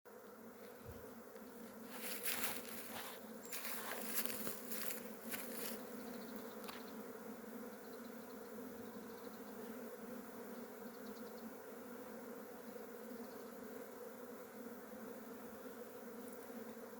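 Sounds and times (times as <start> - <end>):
bees buzzing: 0.1 - 16.9
rustling: 1.7 - 5.8.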